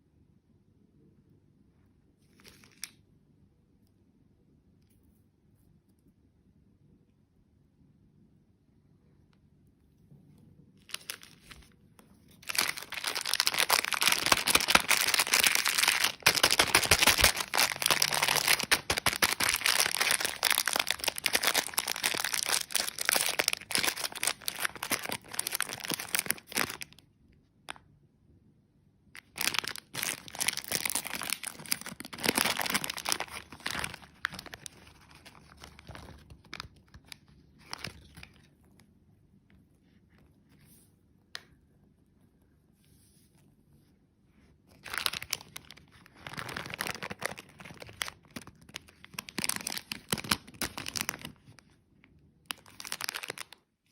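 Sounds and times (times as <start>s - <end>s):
plastic packaging crinkling and tearing: 10.8s - 27.0s, 29.2s - 38.8s, 44.7s - 53.6s.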